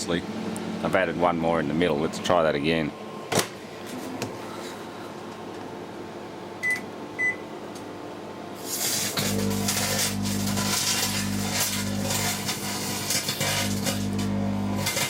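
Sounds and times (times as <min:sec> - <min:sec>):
cooling fans rushing: 0:00.0 - 0:15.0
microwave oven mains hum: 0:00.0 - 0:15.0
keypad beeps: 0:06.6 - 0:07.4.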